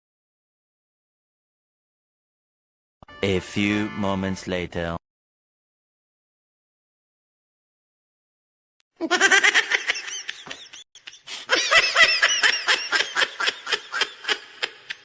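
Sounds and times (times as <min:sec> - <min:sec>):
person laughing hard: 0:09.0 - 0:15.0.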